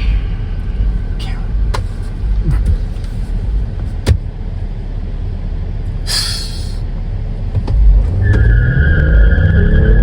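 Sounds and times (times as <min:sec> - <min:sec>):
car driving rumble: 0:00.0 - 0:10.0
short hiss: 0:06.1 - 0:06.8.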